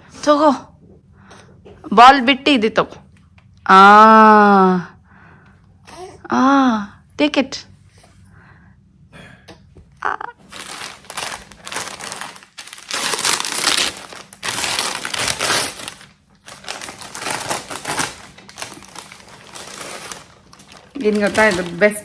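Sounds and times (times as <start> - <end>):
gift packaging crinkling: 10.4 - 22.0.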